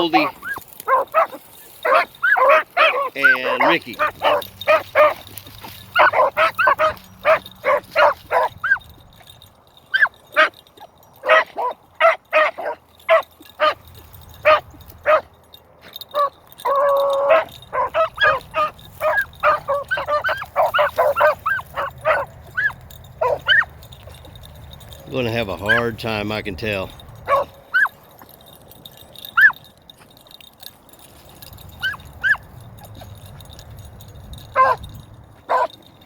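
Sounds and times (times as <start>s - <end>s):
hounds yelping: 0.0s - 26.1s, 26.8s - 36.0s
dog howling: 16.6s - 23.7s.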